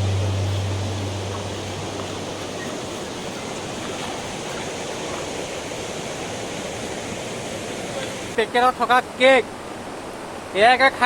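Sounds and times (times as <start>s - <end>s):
waterfall rushing: 0.0s - 8.9s.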